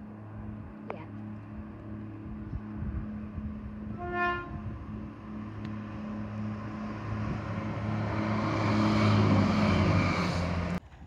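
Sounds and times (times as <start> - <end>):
diesel train engine hum: 0.0 - 11.0
train rumble: 0.0 - 11.0
short train horn toot: 3.9 - 4.6.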